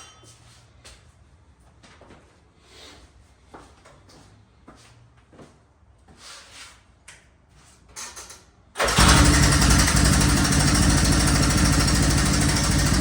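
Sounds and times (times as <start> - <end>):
light clicks and scuffs: 0.2 - 8.2
motorcycle engine starting and running: 8.8 - 13.0.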